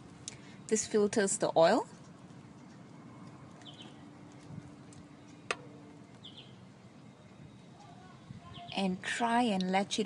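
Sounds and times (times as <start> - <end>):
faint steady hum: 0.0 - 10.0
high bird chirps: 6.2 - 6.6.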